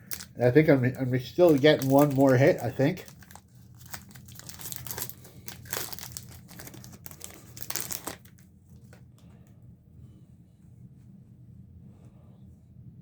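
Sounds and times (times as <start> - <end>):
plastic wrapper crinkling and tearing: 0.0 - 9.0.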